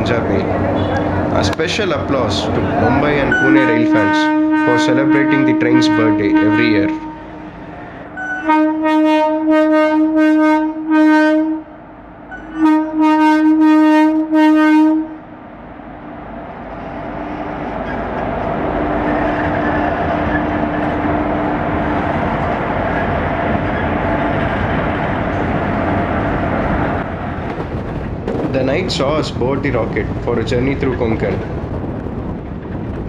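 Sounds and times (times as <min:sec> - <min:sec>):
train running rumble: 0:00.0 - 0:33.0
locomotive horn blasts: 0:00.7 - 0:01.2, 0:03.0 - 0:07.6, 0:08.2 - 0:11.8, 0:12.5 - 0:15.2.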